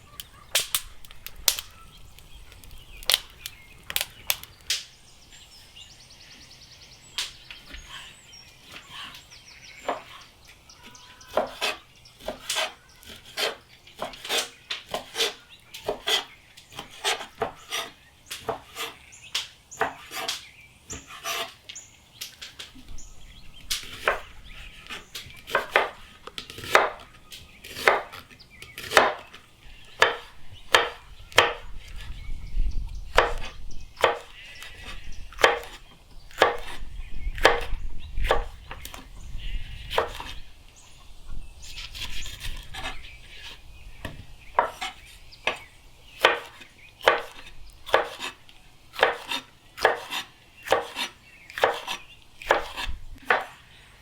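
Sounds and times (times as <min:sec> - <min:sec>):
knife chopping on cutting board: 0:11.3 - 0:19.0, 0:25.5 - 0:27.1, 0:27.7 - 0:28.2, 0:28.8 - 0:29.3, 0:30.0 - 0:31.6, 0:33.1 - 0:34.3, 0:35.4 - 0:36.8, 0:37.4 - 0:38.6, 0:39.9 - 0:40.3, 0:46.2 - 0:48.4, 0:49.0 - 0:53.5.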